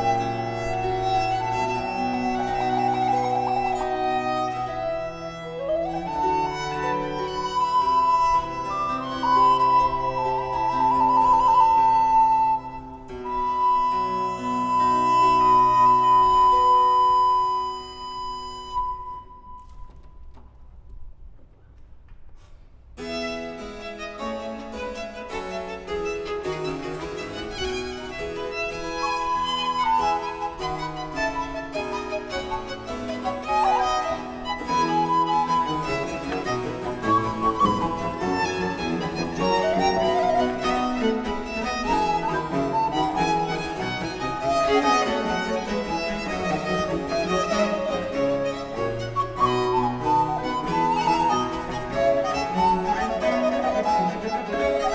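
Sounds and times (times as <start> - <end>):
cello: 0.0 - 20.4, 23.0 - 54.9
violin: 0.0 - 21.1, 23.0 - 54.9
harpsichord: 23.1 - 54.9.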